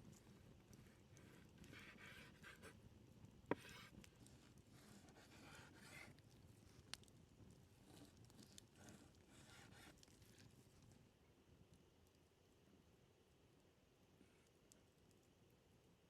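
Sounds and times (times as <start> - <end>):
faint rustling and scraping: 0.0 - 11.1.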